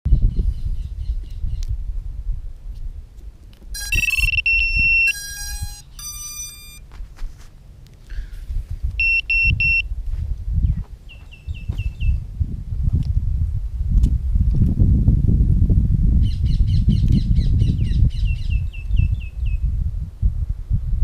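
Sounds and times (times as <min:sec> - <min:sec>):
electronic beeps and tones: 0:03.8 - 0:06.8.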